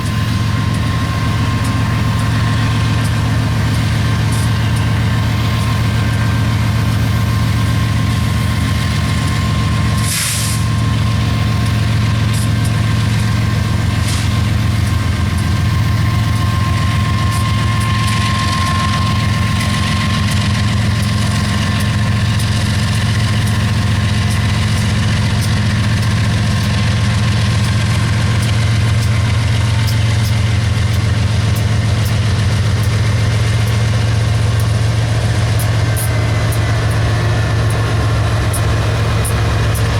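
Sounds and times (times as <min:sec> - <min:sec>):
diesel locomotive engine humming: 0:00.0 - 0:39.9
short hiss of air: 0:10.0 - 0:10.6.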